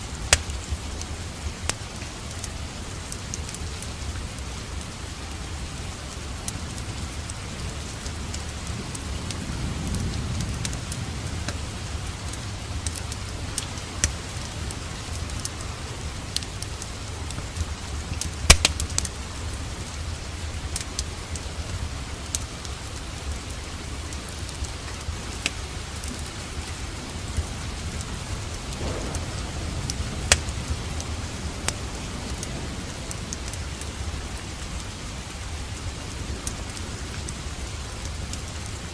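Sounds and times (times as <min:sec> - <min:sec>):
steady rain: 0:00.0 - 0:38.9
wood fire crackling: 0:00.0 - 0:38.9.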